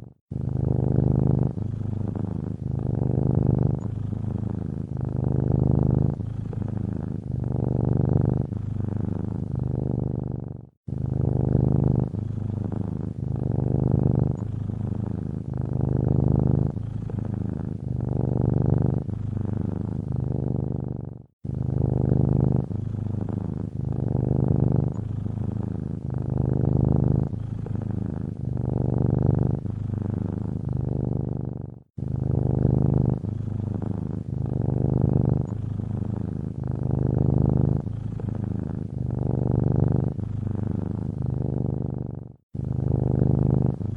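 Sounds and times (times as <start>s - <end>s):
cat purring: 0.0s - 43.9s.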